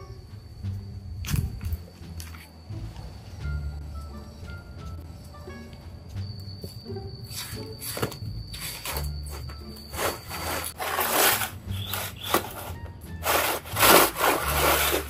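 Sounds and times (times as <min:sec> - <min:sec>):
background music: 0:00.0 - 0:15.0
bamboo tray scraping over stone: 0:09.9 - 0:15.0.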